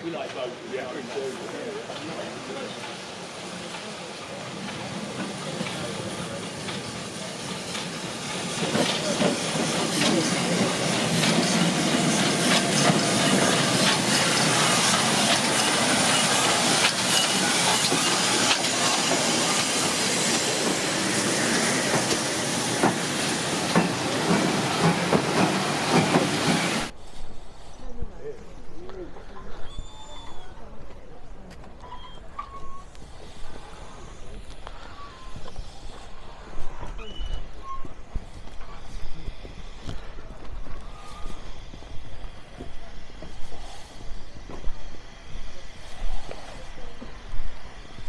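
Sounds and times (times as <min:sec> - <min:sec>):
steam hissing: 0:00.1 - 0:48.0
train wheels clattering: 0:00.2 - 0:28.3.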